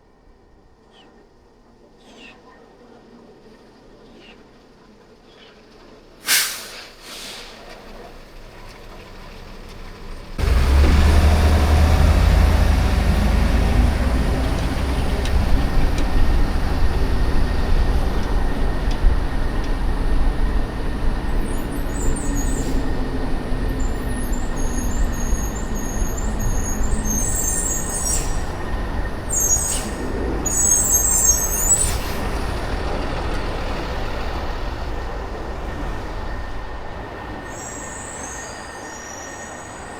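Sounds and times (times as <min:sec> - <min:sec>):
traffic rumble: 0:07.5 - 0:38.8
click: 0:18.2 - 0:19.0.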